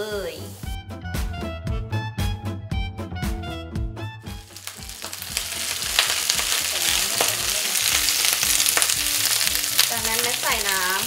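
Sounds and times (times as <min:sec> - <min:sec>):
vegetables sizzling in hot oil: 0:04.4 - 0:11.0.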